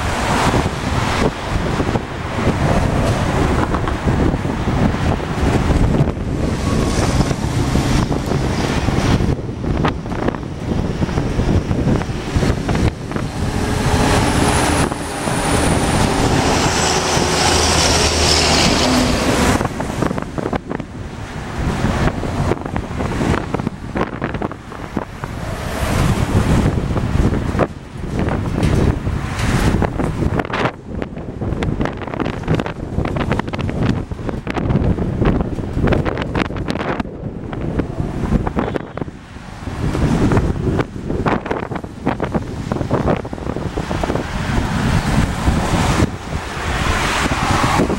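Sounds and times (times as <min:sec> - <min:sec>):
high engine whine: 0:00.0 - 0:47.9
jet engines rumbling: 0:00.0 - 0:47.9
wind buffeting microphone: 0:00.0 - 0:47.9.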